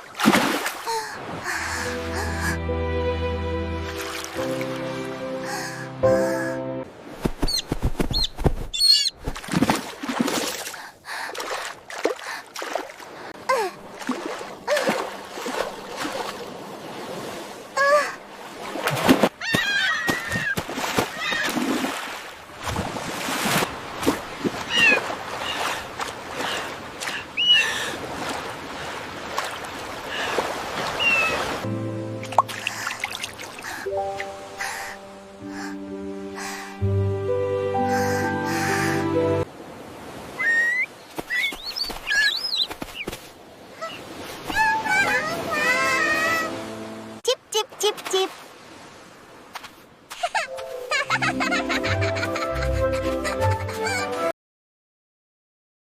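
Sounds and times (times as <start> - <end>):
water splashing: 0.0 - 1.9, 3.8 - 5.2, 7.0 - 35.0.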